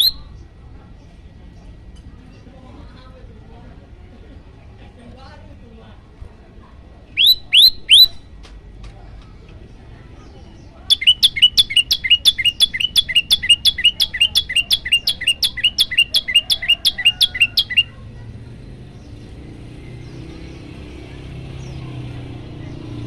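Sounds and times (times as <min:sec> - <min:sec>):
bird singing down-slurred chirps: 0:00.0 - 0:00.4, 0:07.1 - 0:08.3, 0:10.3 - 0:18.0.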